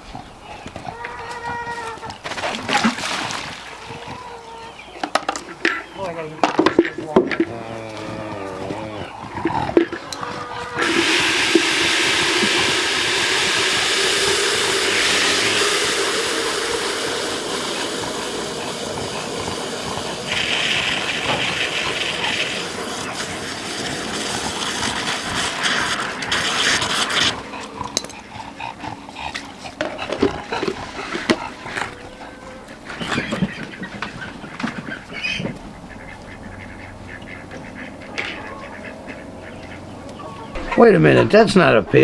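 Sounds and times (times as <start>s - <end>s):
water running into container: 2.2s - 4.0s, 9.8s - 27.5s.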